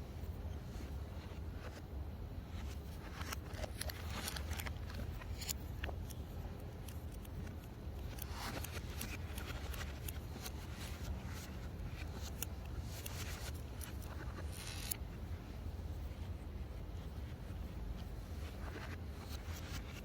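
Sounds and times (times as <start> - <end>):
steady low hum: 0.0 - 20.0
parts clicking and scraping: 6.8 - 15.1.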